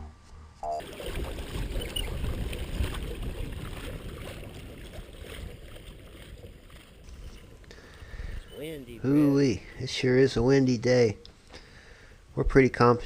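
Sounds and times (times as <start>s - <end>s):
wind buffeting microphone: 0.8s - 9.1s.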